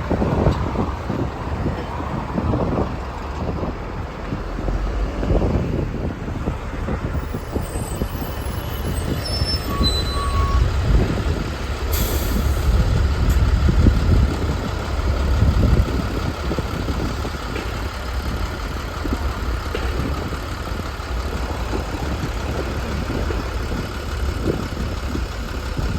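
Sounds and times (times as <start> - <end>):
bus engine rumbling: 0.0 - 25.9
air release hiss: 11.9 - 12.8.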